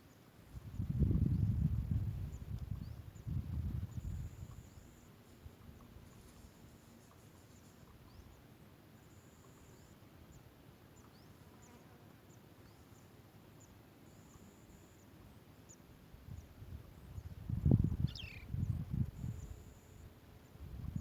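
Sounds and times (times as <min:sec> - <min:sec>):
faint high-pitched chirps: 0:09.0 - 0:16.5, 0:17.1 - 0:21.0.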